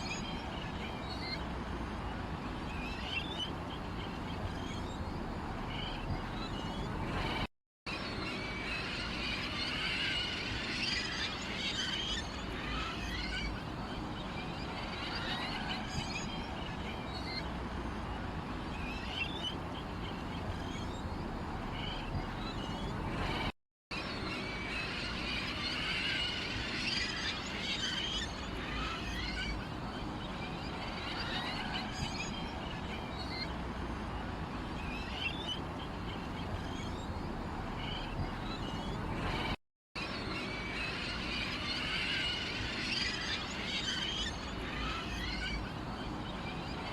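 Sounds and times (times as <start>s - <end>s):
small birds chirping: 0.0s - 7.4s, 9.6s - 23.5s, 26.9s - 39.6s.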